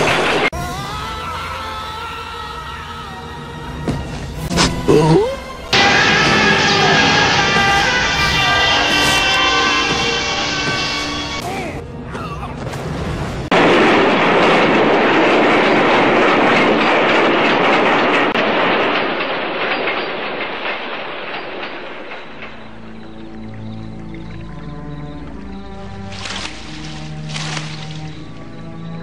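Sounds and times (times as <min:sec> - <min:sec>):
music: 0:00.5 - 0:13.5, 0:22.4 - 0:29.0
train rushing past: 0:05.7 - 0:11.4.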